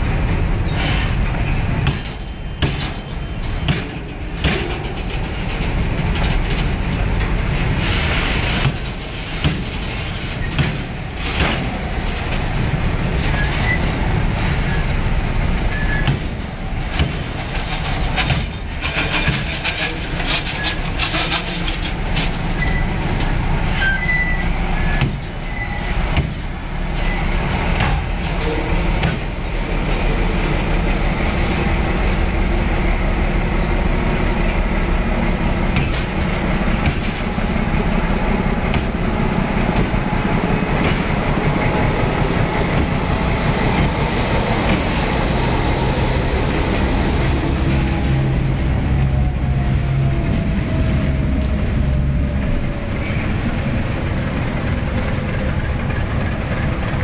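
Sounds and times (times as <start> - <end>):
train wheels rumbling on rails: 0.0 - 57.0
sharp clacks of train wheels: 0.2 - 48.6, 50.1 - 57.0
train wheels squealing: 0.6 - 4.2, 13.2 - 16.3, 17.3 - 21.8, 22.4 - 26.1, 26.9 - 29.0.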